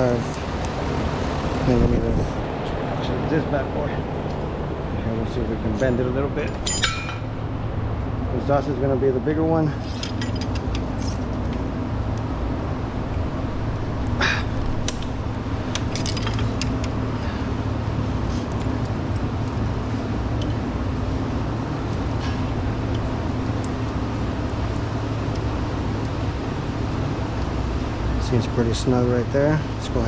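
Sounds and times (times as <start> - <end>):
steady low hum: 0.0 - 30.0
metal tool clicks and clinks: 5.7 - 7.3, 9.8 - 11.2, 15.7 - 17.0.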